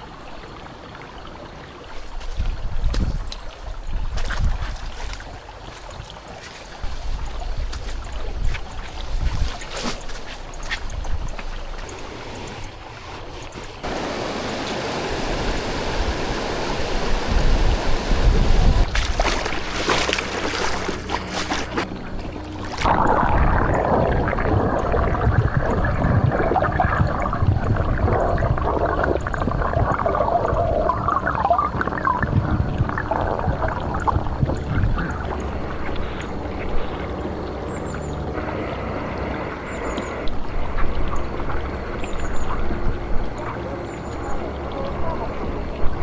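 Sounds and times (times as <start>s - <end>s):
forest stream rushing: 0.0s - 24.7s.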